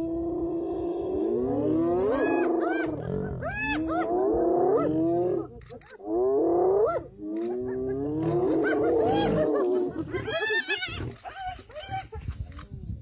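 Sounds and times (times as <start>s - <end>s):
hyenas giggling: 7.4s - 12.4s.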